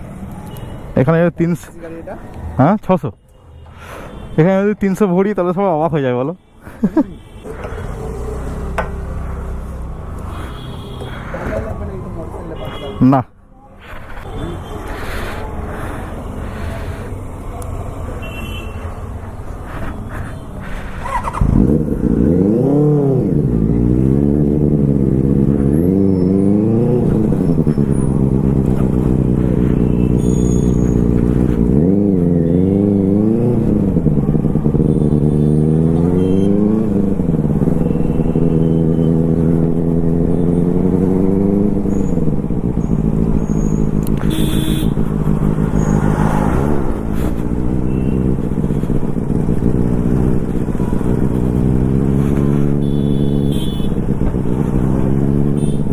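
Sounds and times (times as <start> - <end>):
motorbike engine revving: 20.8 - 55.9.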